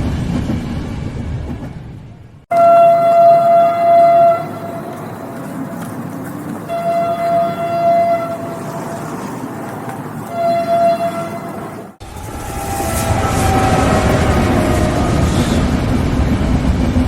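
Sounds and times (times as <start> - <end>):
passing train rumble: 0.0 - 17.0
train horn blasts: 2.5 - 5.2, 6.6 - 9.2, 10.2 - 15.8.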